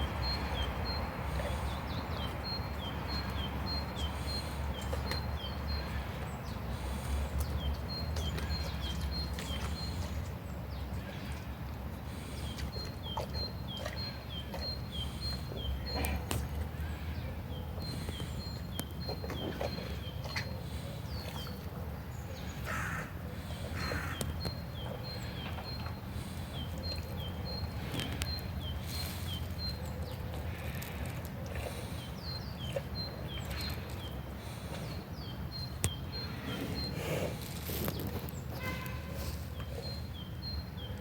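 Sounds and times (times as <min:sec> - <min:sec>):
harsh bird calls: 0:22.2 - 0:31.0.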